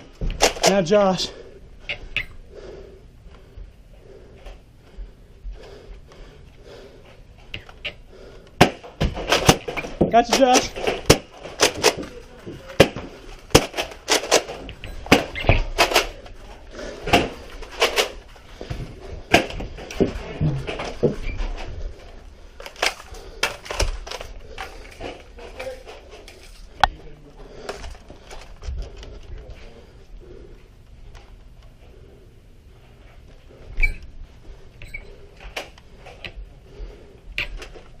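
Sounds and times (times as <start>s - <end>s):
low steady background noise: 0.0s - 38.0s
foam balls striking objects: 8.6s - 16.0s.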